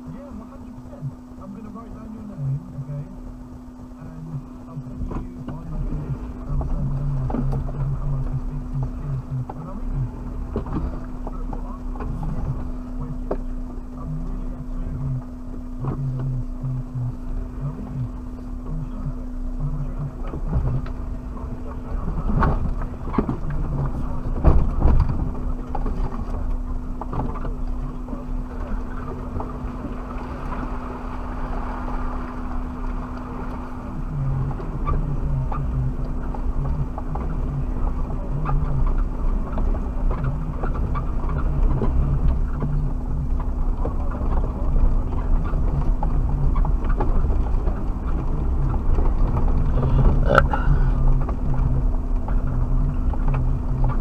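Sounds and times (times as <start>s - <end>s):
body and suspension rattling: 0.0s - 54.0s
car engine humming: 0.0s - 54.0s.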